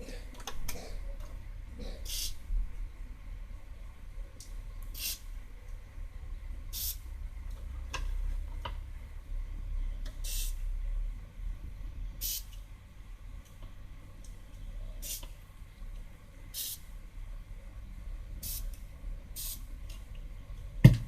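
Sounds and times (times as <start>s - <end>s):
short hissing squirts: 2.1s - 2.4s, 4.9s - 5.3s, 6.7s - 7.0s, 10.2s - 10.6s, 12.2s - 12.5s, 15.0s - 15.3s, 16.6s - 16.8s, 18.4s - 18.7s, 19.4s - 19.6s.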